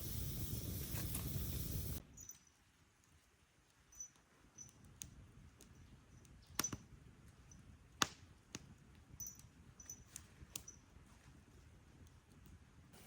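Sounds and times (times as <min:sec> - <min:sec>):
faint steady hiss: 0:00.0 - 0:08.5.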